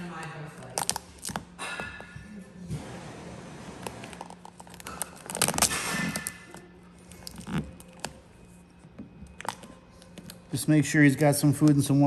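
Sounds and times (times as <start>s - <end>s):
steady low hum: 0.0s - 12.0s
vinyl film crackling and scraping: 2.8s - 10.6s.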